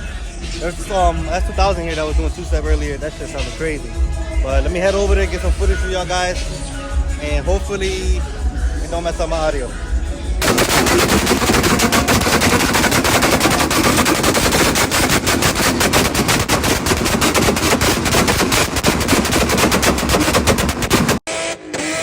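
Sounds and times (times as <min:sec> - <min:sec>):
exhaust popping and banging: 0:10.4 - 0:21.3.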